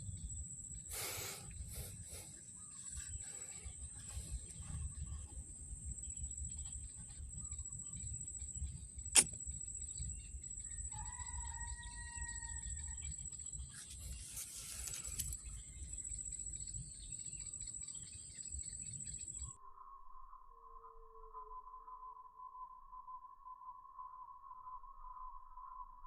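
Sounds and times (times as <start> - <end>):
sharp click: 9.1 - 9.4
bird whistling long note: 19.5 - 26.0.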